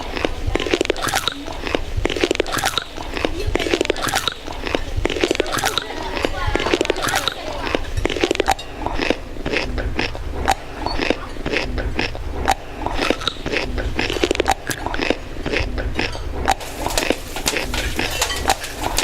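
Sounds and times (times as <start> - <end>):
tableware clicking and clinking: 16.1 - 19.0.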